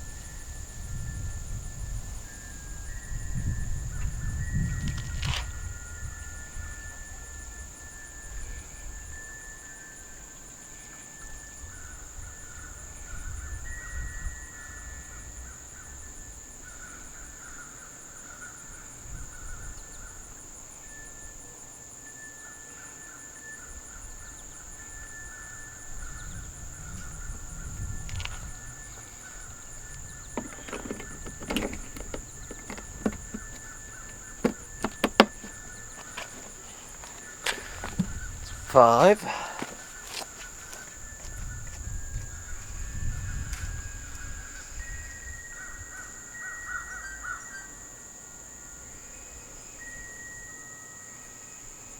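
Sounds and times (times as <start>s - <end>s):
bird calls: 26.1s - 41.7s
sharp clicks and knocks: 30.4s - 36.7s.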